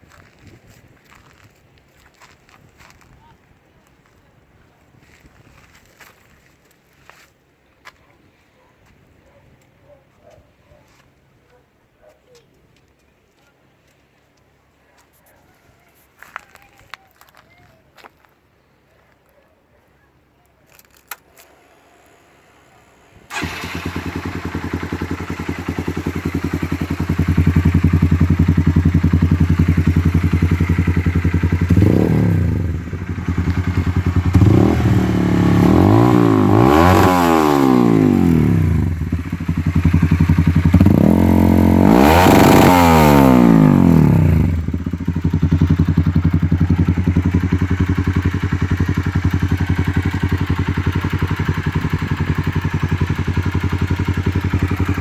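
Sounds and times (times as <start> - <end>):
motorcycle engine idling and revving: 21.4 - 55.0.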